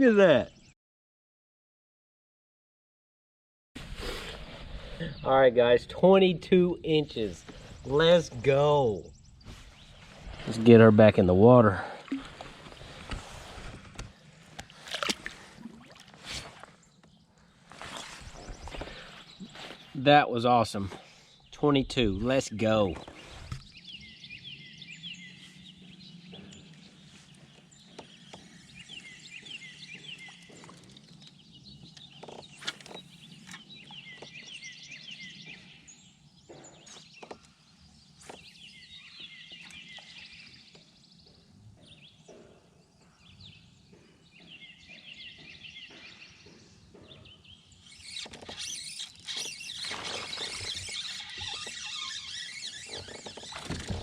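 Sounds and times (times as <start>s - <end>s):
songbird chirping: 4.8s - 54.0s.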